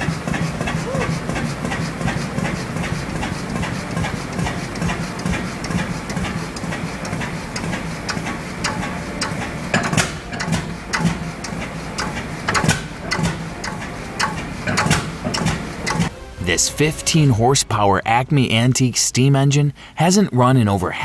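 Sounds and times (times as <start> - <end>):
sharp mechanical clicks: 0.0 - 16.1
engine running with pulsing beat: 0.0 - 17.3.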